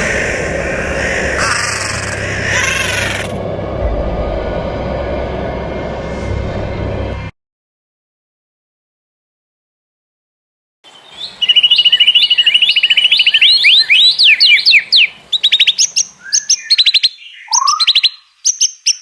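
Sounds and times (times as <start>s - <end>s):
songbird singing: 0.0s - 3.4s, 10.9s - 19.0s.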